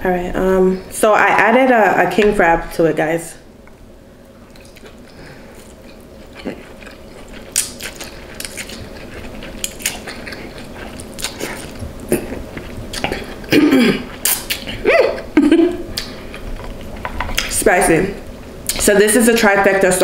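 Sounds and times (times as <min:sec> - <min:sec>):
close-up chewing with wet smacks: 0:04.5 - 0:13.5.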